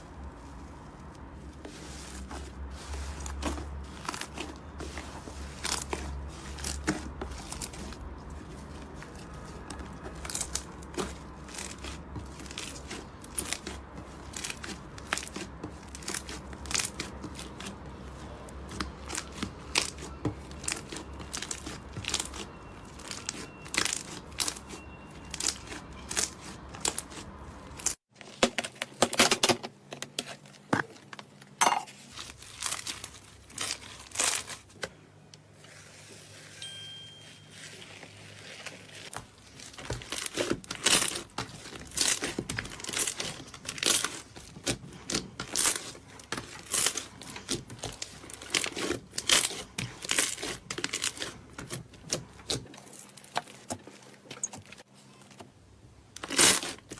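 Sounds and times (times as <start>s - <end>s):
slime crackling and popping: 38.6s - 52.7s.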